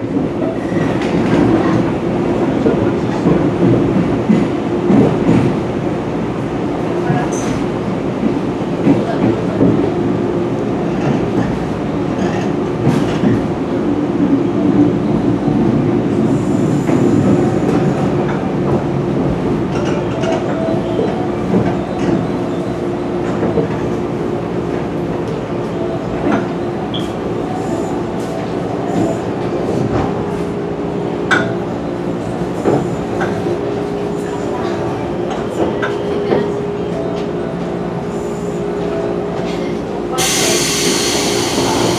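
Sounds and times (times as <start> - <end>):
train running rumble: 0.0 - 41.9.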